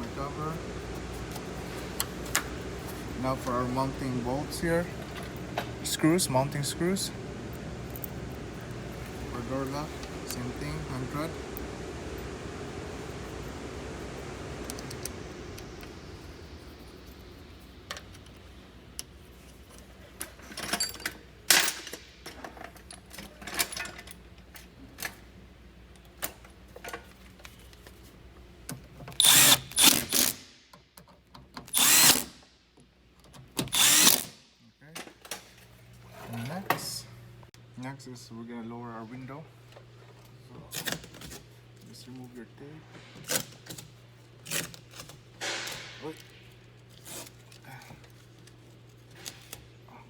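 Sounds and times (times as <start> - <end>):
steady hiss: 9.3 - 19.2
cordless drill driving screws: 29.2 - 30.4, 31.7 - 32.4, 33.6 - 34.4.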